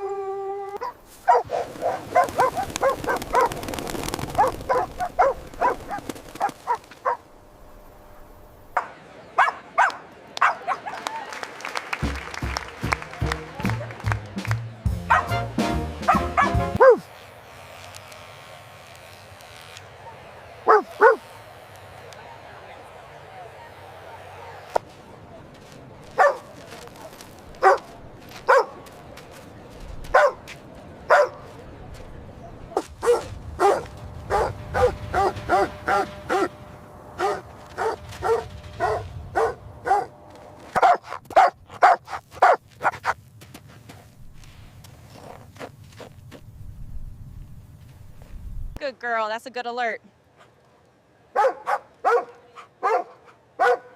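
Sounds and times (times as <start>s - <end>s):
dog yipping and barking: 0.7s - 3.5s, 4.4s - 6.0s, 16.1s - 17.1s, 20.7s - 21.2s, 30.2s - 30.4s, 40.8s - 43.1s, 51.4s - 53.9s
dog barking: 0.8s - 3.6s, 4.4s - 7.2s, 9.4s - 11.0s, 15.1s - 15.4s, 16.1s - 17.1s, 20.7s - 21.3s, 26.2s - 26.5s, 27.6s - 27.9s, 28.5s - 28.8s, 30.1s - 30.4s, 31.1s - 31.4s, 33.0s - 36.5s, 37.2s - 40.1s, 40.8s - 43.2s, 51.3s - 53.9s
music with a steady beat: 12.0s - 16.8s.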